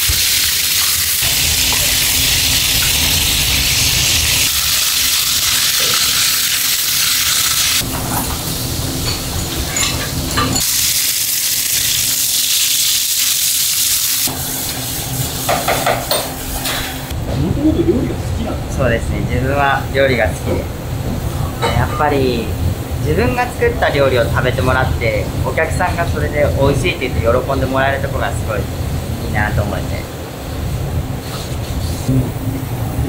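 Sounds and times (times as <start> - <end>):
food sizzling in oil: 0.0 - 17.1.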